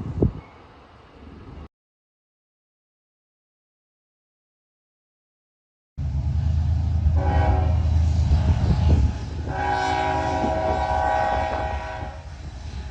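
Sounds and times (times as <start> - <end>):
diesel locomotive engine rumble: 6.0 - 12.9
multi-note air horn blasts: 7.2 - 12.3.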